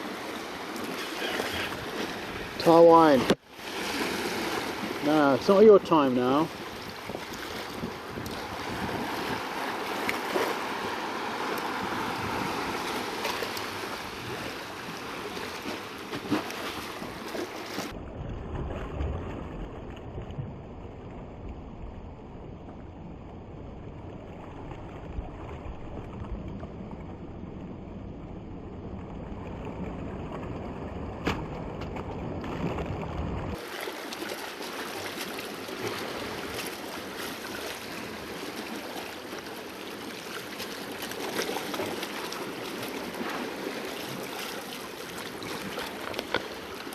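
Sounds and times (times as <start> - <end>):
sea waves washing against rocks: 0.0 - 18.0, 30.2 - 46.9
wind on microphone: 6.4 - 33.6.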